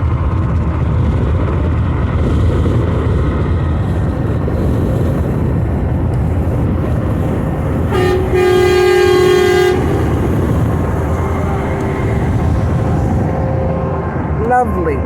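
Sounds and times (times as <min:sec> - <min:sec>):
highway road noise: 0:00.0 - 0:15.0
truck air horn: 0:07.7 - 0:14.3.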